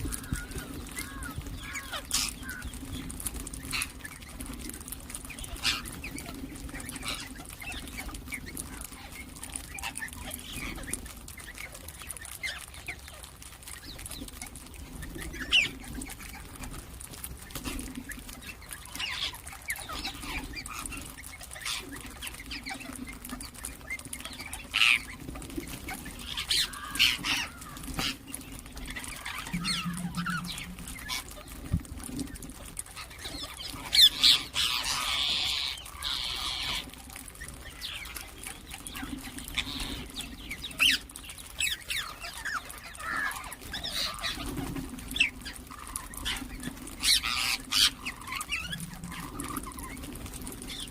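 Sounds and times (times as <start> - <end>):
parrots chirping and calling: 0.0 - 50.9
faint low hum: 25.9 - 33.9.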